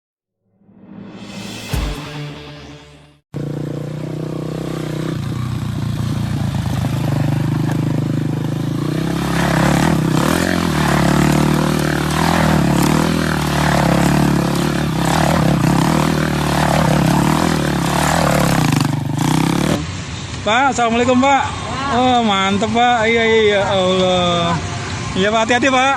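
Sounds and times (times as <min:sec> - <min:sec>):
high rising and falling sound: 0:00.4 - 0:03.2
motorcycle engine running: 0:03.4 - 0:20.0.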